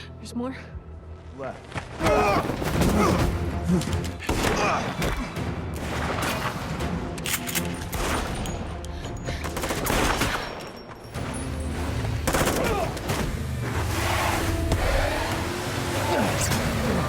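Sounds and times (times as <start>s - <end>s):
tense film score: 0.0s - 17.0s
rapid gunshots: 9.4s - 10.6s, 12.2s - 13.6s.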